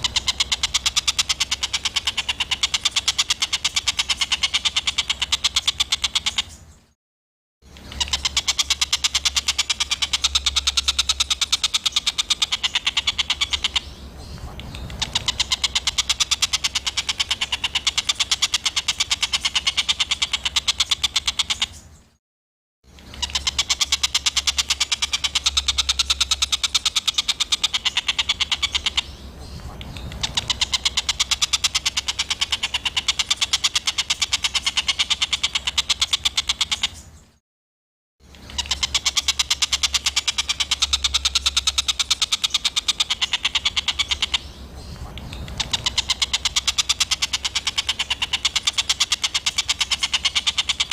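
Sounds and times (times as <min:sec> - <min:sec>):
songbird rapid rough call: 0:07.6 - 0:21.9, 0:38.2 - 0:50.9.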